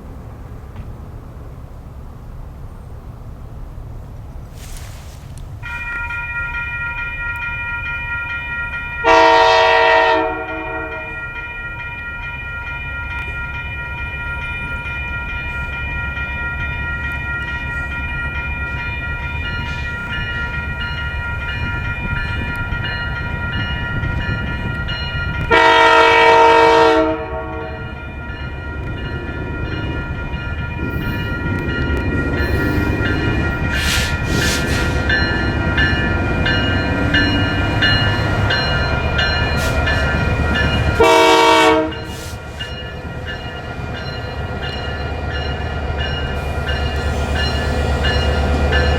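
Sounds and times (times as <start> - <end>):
diesel locomotive rumbling: 0.0 - 48.9
locomotive high whine: 0.0 - 48.9
locomotive horn blasts: 9.0 - 11.2, 25.4 - 28.0, 40.9 - 42.3.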